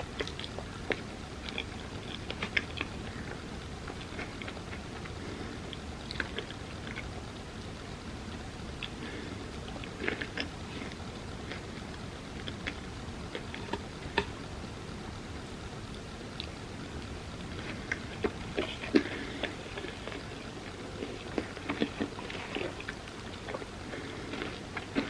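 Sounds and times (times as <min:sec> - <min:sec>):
wet chewing mouth clicks: 0:00.1 - 0:03.1.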